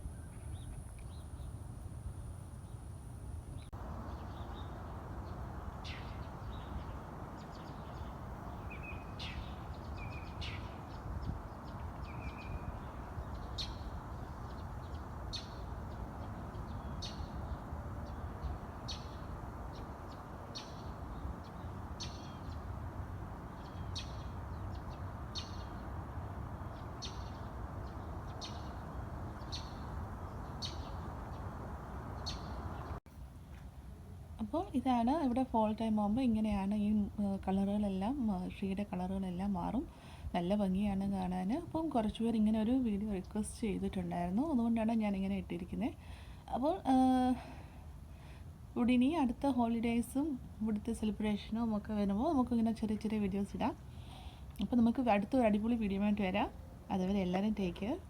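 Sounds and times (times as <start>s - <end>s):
small birds chirping: 3.5s - 33.0s.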